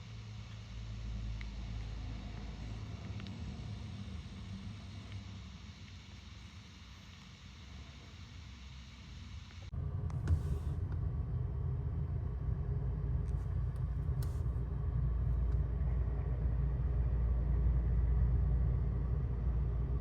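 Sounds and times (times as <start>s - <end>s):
faint clicks: 1.3s - 3.5s
truck engine rumbling: 9.7s - 20.0s.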